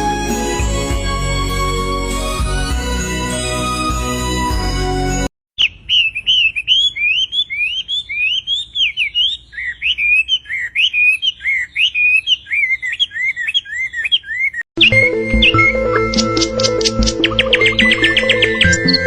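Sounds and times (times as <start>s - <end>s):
songbird whistling and chirping: 5.6s - 19.0s.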